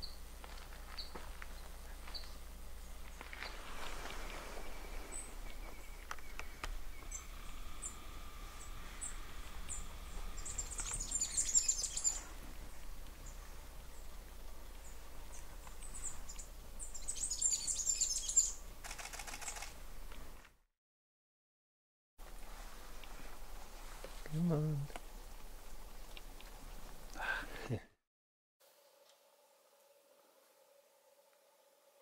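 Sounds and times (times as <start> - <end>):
small birds chipping: 0.0 - 18.7
rapid high twittering: 5.0 - 12.3.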